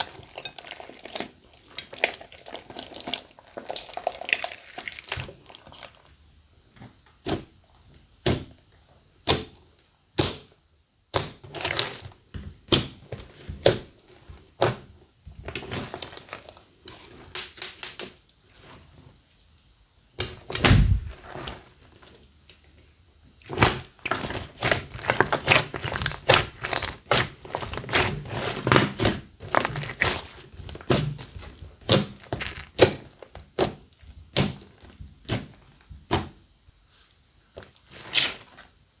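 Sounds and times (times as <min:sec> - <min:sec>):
slime clicking and crackling: 0:11.1 - 0:13.0, 0:15.4 - 0:18.3, 0:23.4 - 0:36.2
heavy thunk: 0:20.6 - 0:21.1.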